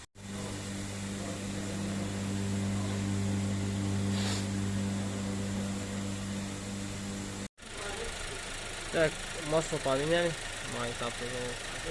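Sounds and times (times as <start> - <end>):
low mechanical hum: 0.0 - 9.0
brief hiss: 4.0 - 5.9.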